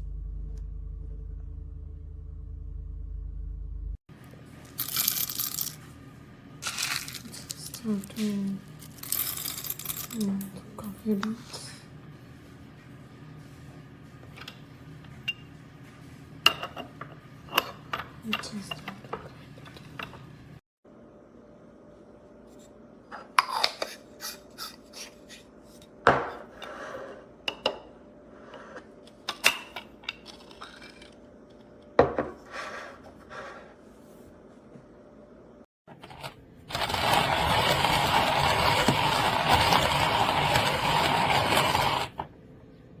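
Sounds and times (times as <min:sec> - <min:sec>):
coffee beans being ground: 0:04.6 - 0:05.9, 0:06.6 - 0:10.5, 0:35.9 - 0:42.2
metal grinder parts clinking: 0:04.8 - 0:05.8, 0:06.6 - 0:08.2, 0:08.8 - 0:10.3.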